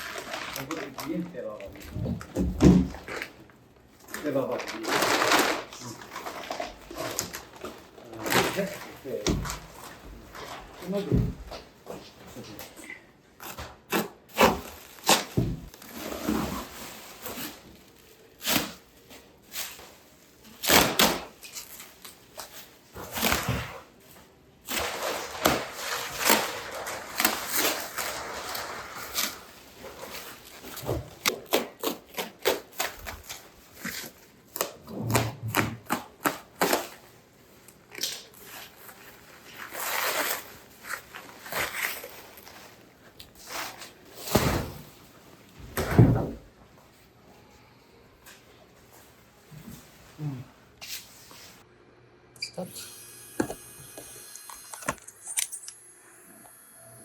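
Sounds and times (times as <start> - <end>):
scraping or rustling: 24.7 - 31.1.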